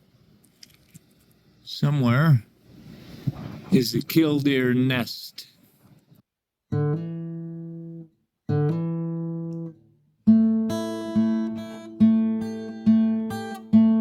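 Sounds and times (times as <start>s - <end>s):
acoustic guitar strumming: 6.7s - 14.0s.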